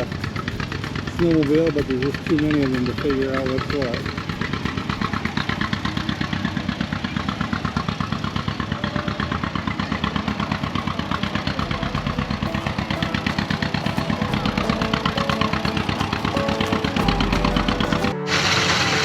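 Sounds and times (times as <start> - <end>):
old engine running: 0.0 - 19.0.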